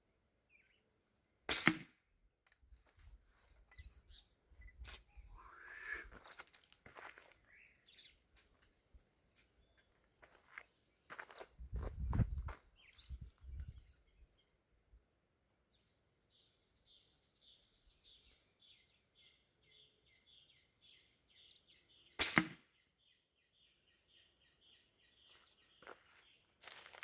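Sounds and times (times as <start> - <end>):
air rifle shot: 1.5 - 1.9, 22.2 - 22.6.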